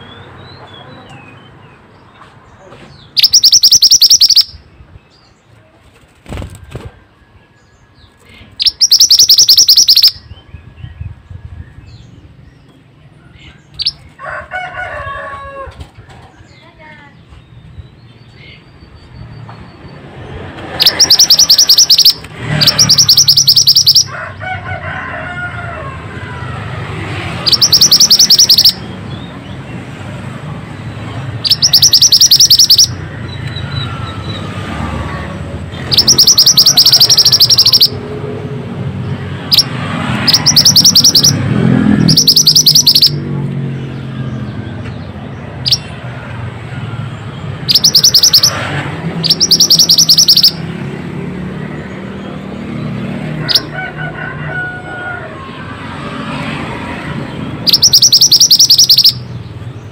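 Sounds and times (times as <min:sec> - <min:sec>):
bird trilling high notes: 0:03.2 - 0:04.7, 0:08.6 - 0:10.3, 0:20.8 - 0:24.1, 0:27.4 - 0:28.8, 0:31.4 - 0:34.4, 0:35.8 - 0:38.0, 0:39.5 - 0:43.2, 0:47.6 - 0:48.6, 0:49.2 - 0:50.6, 0:57.6 - 0:59.3.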